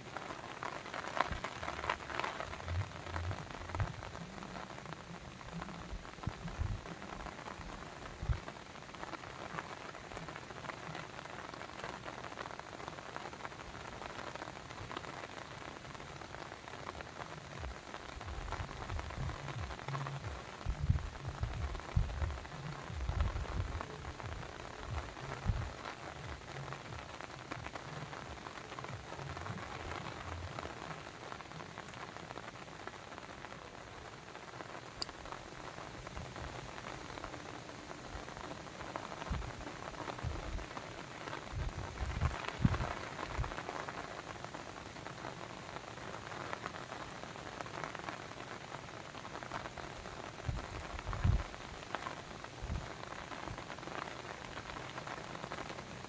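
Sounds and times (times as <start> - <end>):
soft low thumps: 2.5 - 4.4, 5.5 - 6.9, 17.6 - 30.6.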